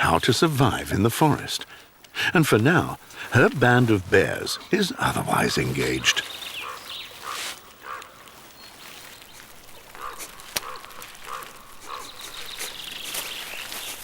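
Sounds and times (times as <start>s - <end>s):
bear cubs grunting: 1.2s - 8.4s, 9.4s - 13.4s.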